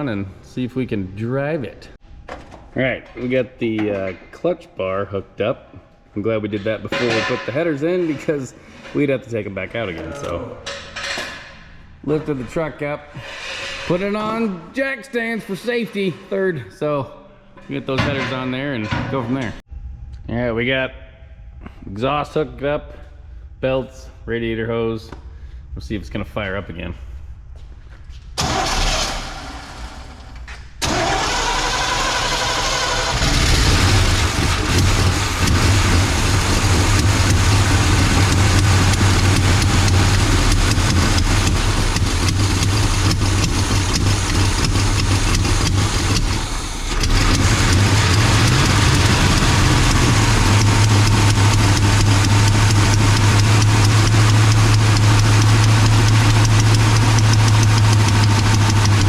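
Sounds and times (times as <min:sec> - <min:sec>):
truck engine starting and running: 0:28.4 - 0:59.0.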